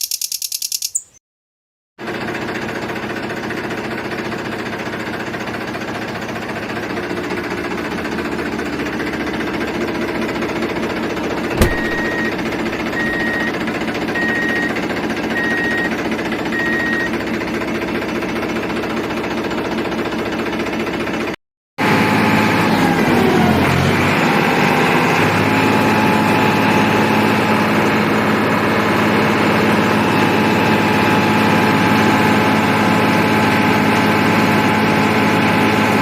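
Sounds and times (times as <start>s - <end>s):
sharp click: 11.6s - 12.4s.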